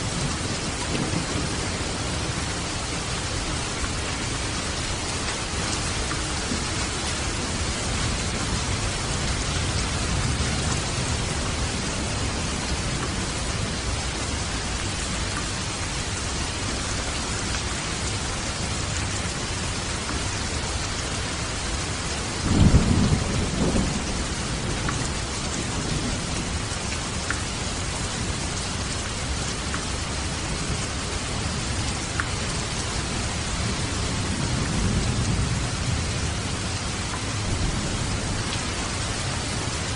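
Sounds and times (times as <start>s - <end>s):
low rumble of thunder: 0.0s - 15.2s, 21.2s - 29.4s, 33.1s - 39.9s
rain and rushing water: 0.0s - 39.9s.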